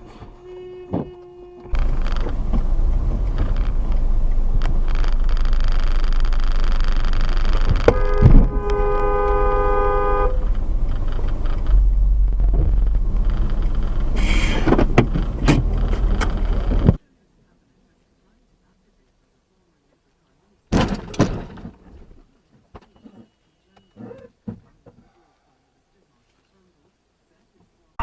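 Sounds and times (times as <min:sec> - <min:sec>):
car horn: 0:00.0 - 0:02.1, 0:07.5 - 0:10.5
car road and engine noise: 0:00.0 - 0:25.1
thump: 0:20.7 - 0:21.8.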